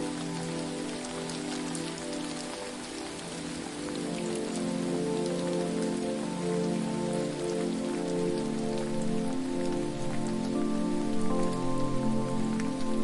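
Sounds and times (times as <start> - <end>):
falling water rushing: 0.0 - 13.0
soft sustained musical tones: 0.0 - 13.0.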